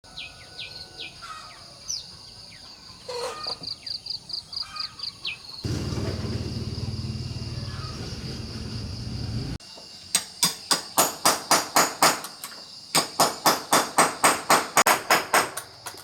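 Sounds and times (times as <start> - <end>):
small birds chirping: 0.1 - 10.2
bird trill: 7.4 - 8.6.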